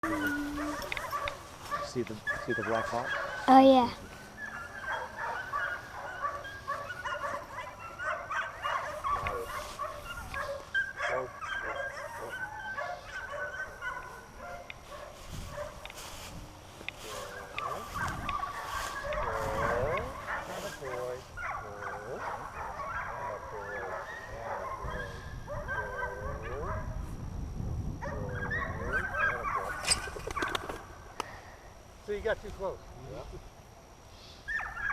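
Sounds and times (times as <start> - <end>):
dog whining and yipping: 0.0 - 1.3, 10.0 - 14.0.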